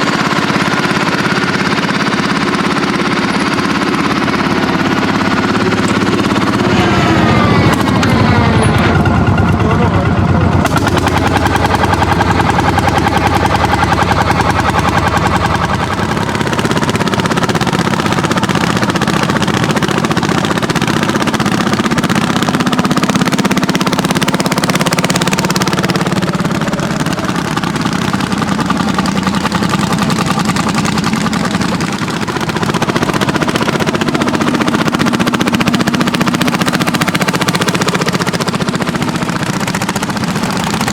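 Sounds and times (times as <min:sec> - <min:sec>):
tractor engines running hard: 0:00.0 - 0:40.9.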